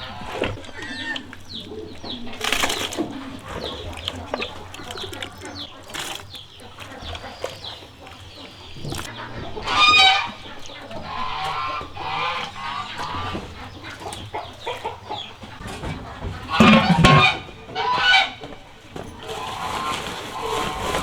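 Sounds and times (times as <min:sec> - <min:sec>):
chickens clucking: 0:00.0 - 0:21.0
loud chicken call: 0:09.1 - 0:13.6, 0:16.3 - 0:18.5.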